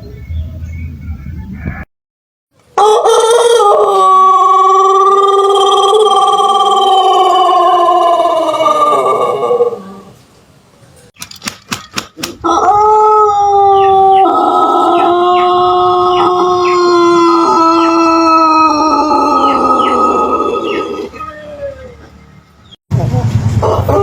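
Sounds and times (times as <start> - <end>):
rooster crowing: 2.7 - 10.1, 12.4 - 22.1, 23.6 - 24.0
wing flaps: 11.2 - 12.5.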